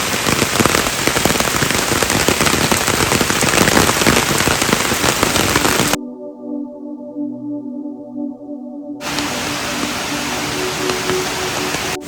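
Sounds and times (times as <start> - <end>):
heavy rain falling: 0.0 - 6.0, 9.0 - 12.0
music: 6.0 - 12.0.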